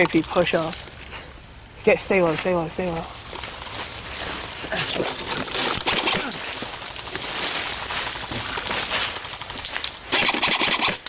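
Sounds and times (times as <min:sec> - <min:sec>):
leaves and brush rustling: 0:00.0 - 0:11.0.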